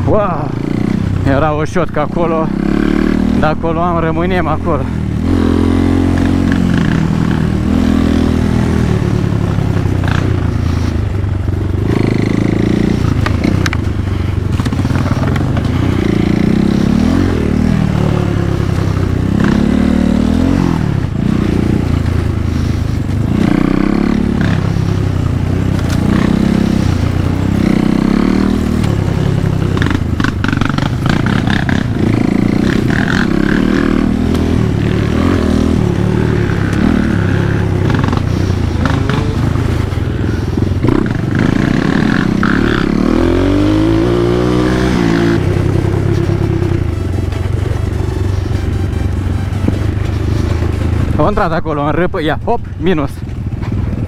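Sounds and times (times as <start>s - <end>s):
dirt bike engine revving: 0.0s - 52.1s.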